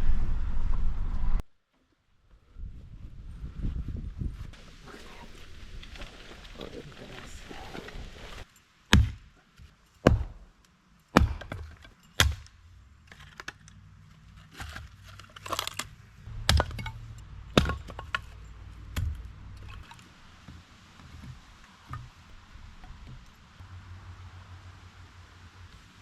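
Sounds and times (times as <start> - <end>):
sharp hard knocks: 8.9 - 9.3, 10.0 - 10.4, 11.2 - 12.5, 16.3 - 18.3.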